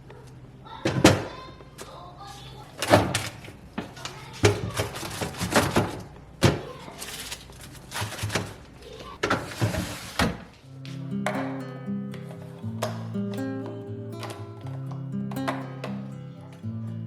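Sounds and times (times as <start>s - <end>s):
household items knocking and clattering: 2.8s - 16.1s
music: 10.6s - 17.0s.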